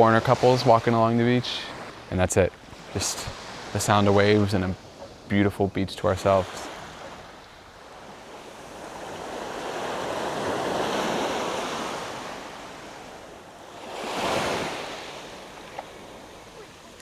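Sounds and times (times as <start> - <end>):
surf washing onto beach: 6.1 - 17.0.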